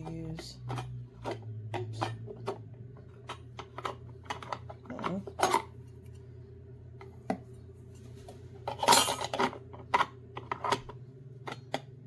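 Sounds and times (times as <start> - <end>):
cups clacking and knocking: 0.0 - 6.2, 8.3 - 12.0
cups clattering: 0.0 - 6.2, 8.6 - 11.9.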